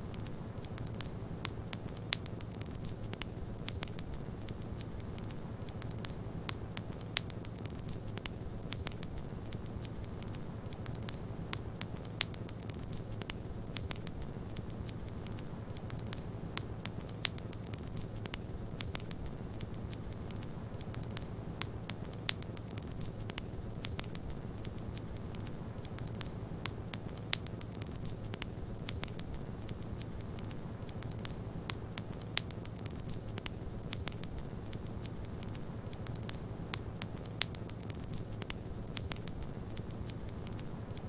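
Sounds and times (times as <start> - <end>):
fire pops: 0.0 - 41.0
wood fire crackling: 0.0 - 41.0.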